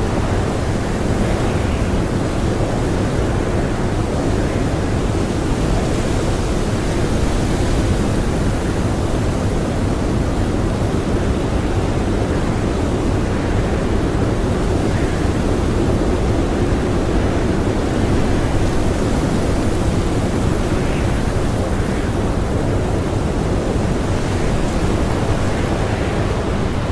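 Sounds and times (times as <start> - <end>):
blizzard wind blowing: 0.0 - 26.9.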